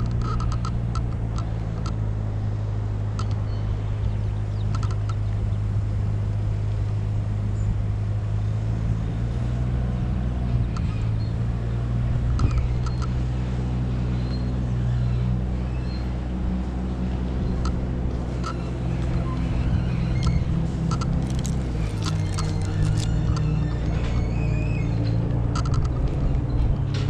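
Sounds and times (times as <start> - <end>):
engine idling: 10.2 - 27.0.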